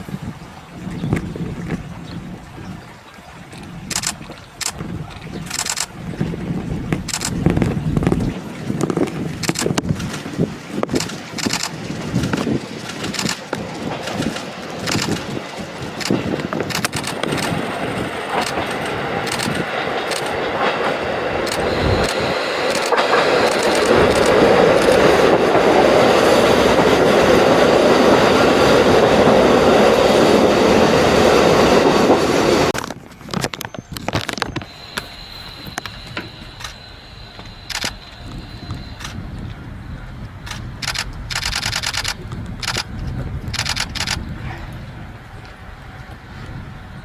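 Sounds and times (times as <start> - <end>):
train passing: 10.1 - 32.8, 34.6 - 42.9
wheels clicking: 10.8 - 39.4
faint steady high tone: 21.6 - 22.4, 33.6 - 40.0.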